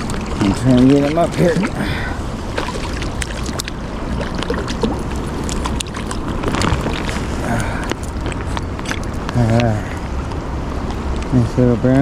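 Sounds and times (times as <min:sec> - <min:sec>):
small clicks and splashes: 0:00.0 - 0:01.8, 0:02.5 - 0:10.4.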